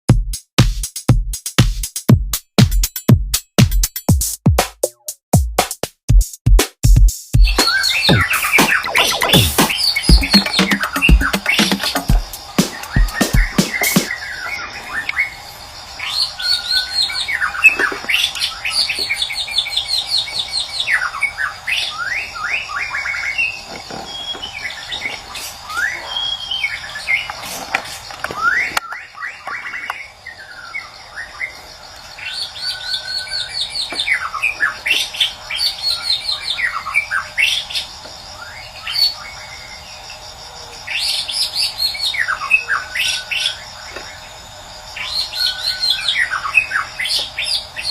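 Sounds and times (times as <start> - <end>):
bird singing whistled phrases and trills: 7.4 - 12.1, 16.0 - 27.4, 28.4 - 31.6, 32.2 - 37.8.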